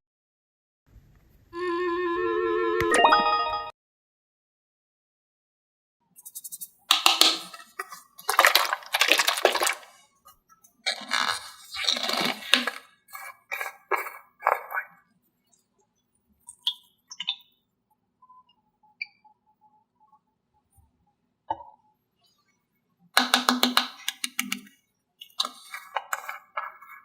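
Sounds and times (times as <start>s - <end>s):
small hard objects clattering: 6.9s - 10.0s, 10.9s - 14.7s, 25.4s - 27.0s.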